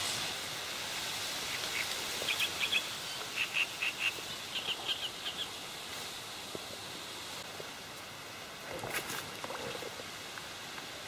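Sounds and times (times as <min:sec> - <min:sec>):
faint outdoor hiss: 0:00.0 - 0:11.0
small bird chirping: 0:01.5 - 0:05.6.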